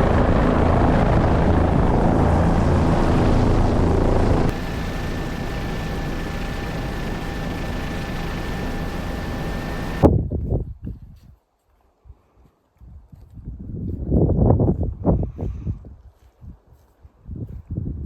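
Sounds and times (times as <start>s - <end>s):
helicopter rotor and engine: 0.0s - 10.1s
thin high whine: 0.0s - 10.1s.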